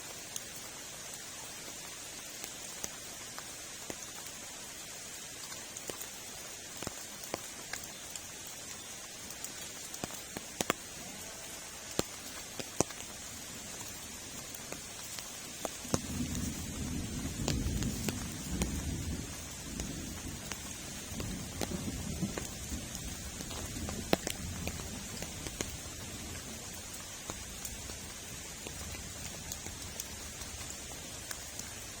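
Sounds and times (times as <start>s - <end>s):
steady rain: 0.0s - 32.0s
thunder rumble: 15.9s - 25.1s.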